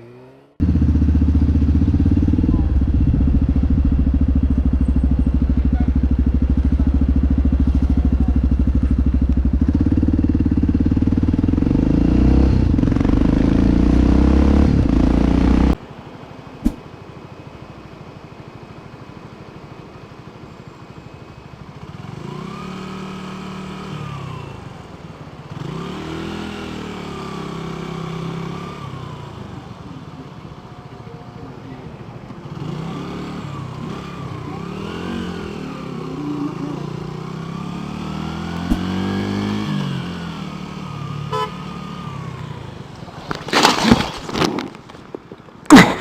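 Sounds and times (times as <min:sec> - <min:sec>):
motorcycle engine running: 0:00.6 - 0:15.8, 0:32.3 - 0:42.9.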